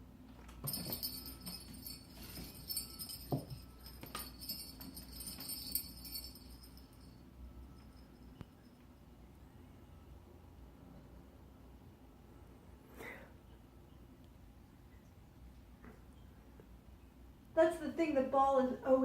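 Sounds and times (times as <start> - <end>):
cat toy bell jingling: 0.6 - 8.8.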